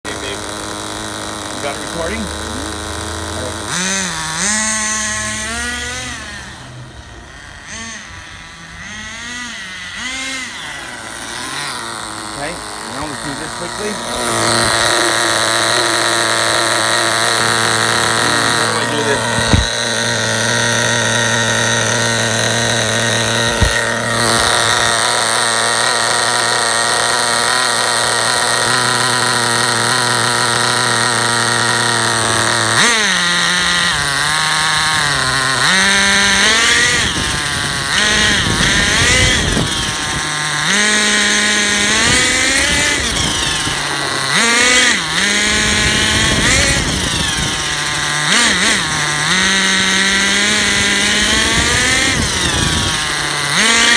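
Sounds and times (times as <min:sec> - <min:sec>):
small engine idling and revving: 0:00.0 - 0:53.9
high-pitched screech: 0:08.8 - 0:25.3.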